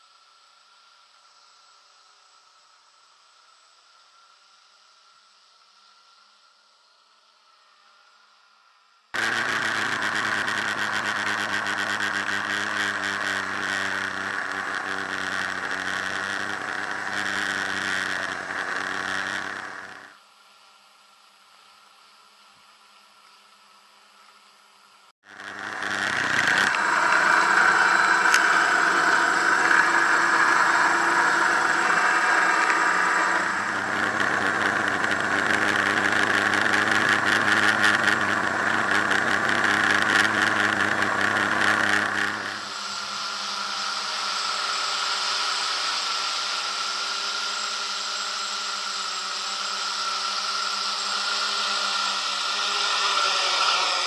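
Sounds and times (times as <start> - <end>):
drone propellers buzzing: 9.2 - 20.2, 25.2 - 54.0.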